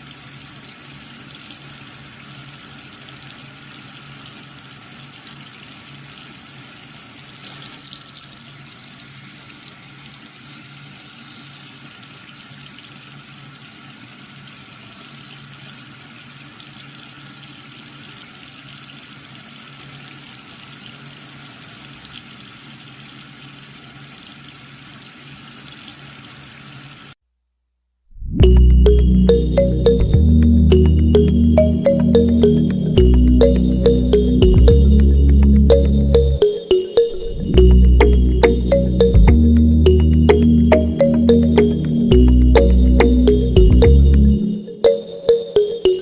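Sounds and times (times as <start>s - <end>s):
water running and splashing: 0.0s - 27.2s.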